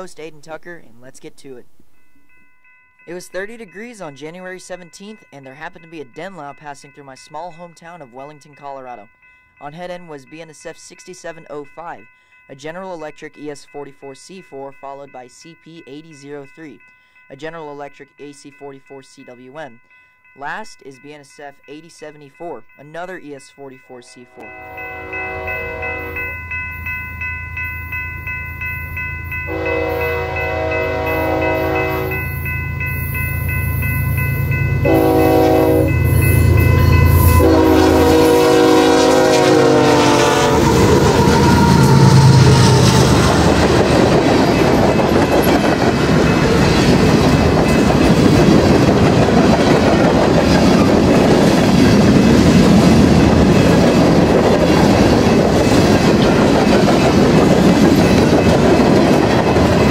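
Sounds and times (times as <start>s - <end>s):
train bell ringing: 0.0s - 59.9s
train horn blasts: 24.3s - 26.3s, 29.5s - 32.2s, 34.8s - 43.2s
diesel locomotive engine rumble: 24.5s - 59.9s
train cars clickety-clack: 36.9s - 59.9s.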